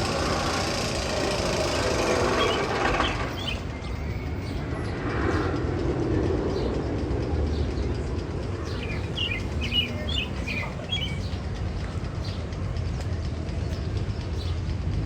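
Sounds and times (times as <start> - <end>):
steady low rumble: 0.0 - 15.0
bird chirping: 1.6 - 4.6, 8.6 - 11.4.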